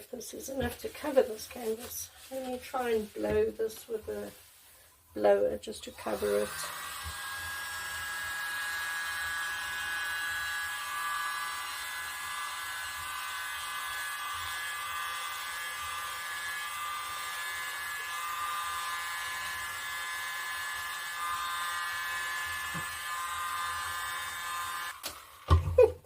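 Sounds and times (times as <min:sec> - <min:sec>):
electric air blower running: 0:06.1 - 0:25.6.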